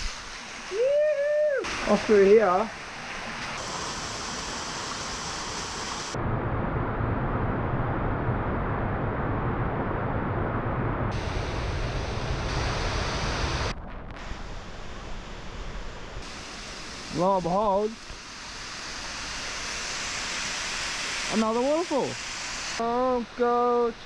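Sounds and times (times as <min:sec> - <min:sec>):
running water: 0:00.0 - 0:06.2, 0:16.2 - 0:24.0
rain: 0:00.0 - 0:24.0.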